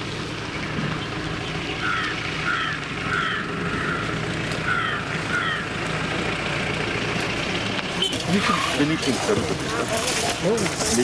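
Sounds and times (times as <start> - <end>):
bird calling: 0.9 - 5.9.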